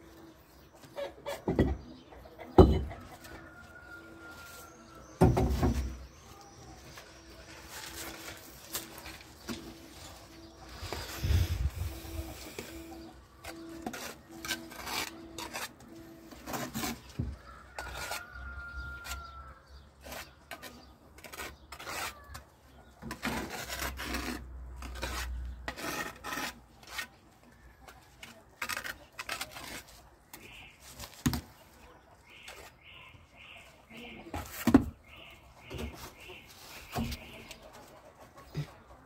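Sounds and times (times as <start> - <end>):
tools scraping and rubbing: 2.9 - 31.3.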